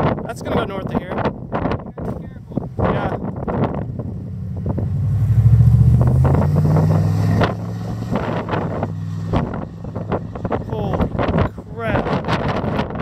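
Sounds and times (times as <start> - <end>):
wind buffeting microphone: 0.0 - 13.0
vehicle engine running: 1.9 - 13.0.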